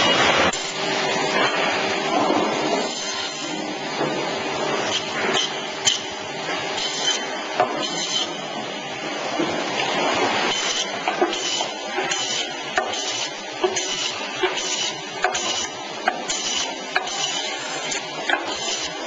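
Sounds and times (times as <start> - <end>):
bandsaw cutting meat and bone: 6.8 - 8.4, 10.4 - 19.0.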